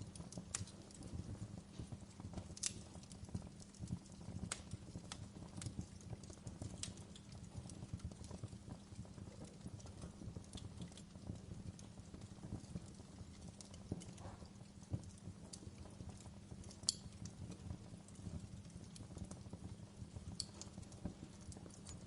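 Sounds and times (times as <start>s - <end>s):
fire crackling in a fireplace: 0.0s - 22.0s.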